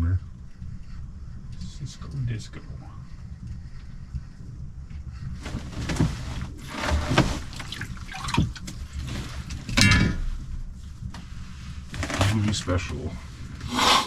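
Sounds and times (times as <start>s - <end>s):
water splashing and gurgling: 6.6s - 9.2s.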